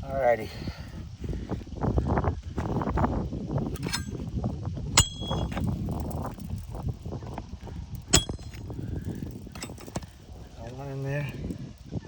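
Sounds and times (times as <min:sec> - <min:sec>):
light metallic clink: 0:03.7 - 0:04.4, 0:05.0 - 0:06.6, 0:08.0 - 0:10.2
hammer striking metal bar: 0:05.0 - 0:05.5, 0:08.1 - 0:08.6.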